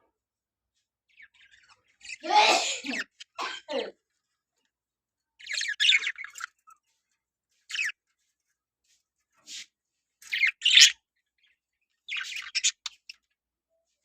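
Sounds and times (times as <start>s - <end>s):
budgerigars chirping: 5.4s - 7.0s, 7.6s - 8.1s, 10.2s - 13.3s.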